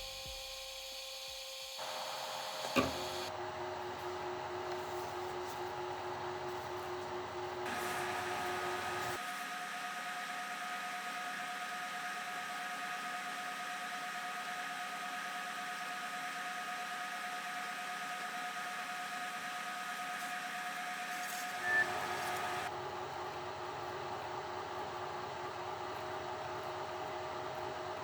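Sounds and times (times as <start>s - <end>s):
milling machine motor whine: 0.0s - 3.3s, 7.7s - 22.7s.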